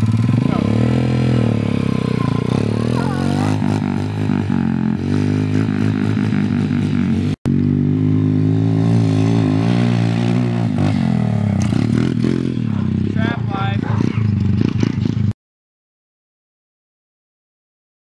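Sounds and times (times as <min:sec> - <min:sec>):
pit bike engine under throttle: 0:00.0 - 0:15.4.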